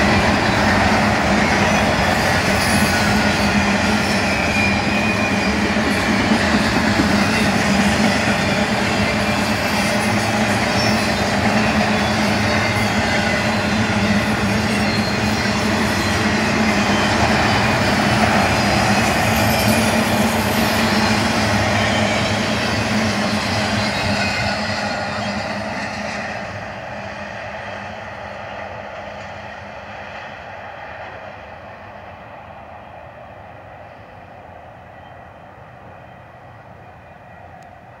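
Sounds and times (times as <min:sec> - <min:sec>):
freight train wheels rumbling: 0:00.0 - 0:38.0.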